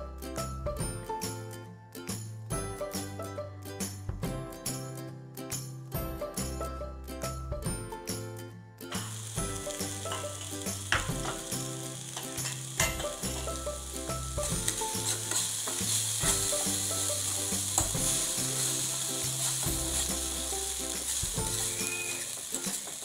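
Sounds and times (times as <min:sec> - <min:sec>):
spoon scraping pan: 0:09.0 - 0:13.8, 0:14.4 - 0:23.0
vegetables sizzling in frying pan: 0:09.0 - 0:23.0.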